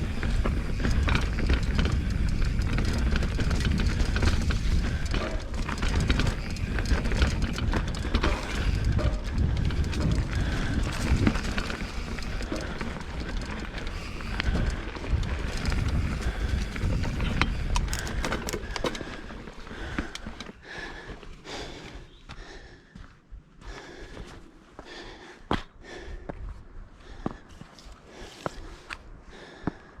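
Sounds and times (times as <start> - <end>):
wind rumble on microphone: 0.0 - 20.4, 26.1 - 27.7
bike rattling and clicking: 0.0 - 21.8
bike tyre noise: 0.0 - 23.0.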